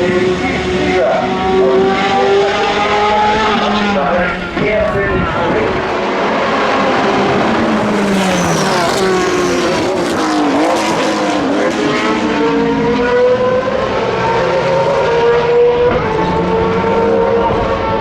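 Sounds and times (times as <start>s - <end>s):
racing cars passing at speed: 0.0s - 18.0s.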